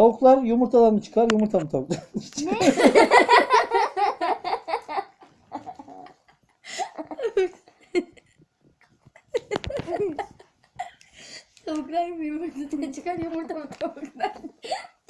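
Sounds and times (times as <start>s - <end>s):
person laughing: 1.9s - 8.3s, 9.0s - 11.0s
quiet giggles: 4.4s - 11.2s.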